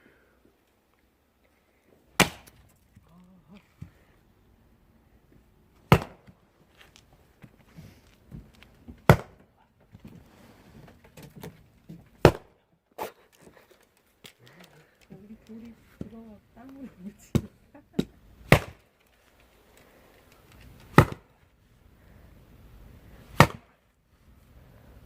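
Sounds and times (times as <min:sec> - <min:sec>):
axe chopping firewood: 0:02.2 - 0:03.1, 0:05.8 - 0:06.4, 0:08.3 - 0:10.2, 0:11.2 - 0:13.1, 0:17.2 - 0:19.0, 0:20.7 - 0:21.4, 0:23.3 - 0:23.8.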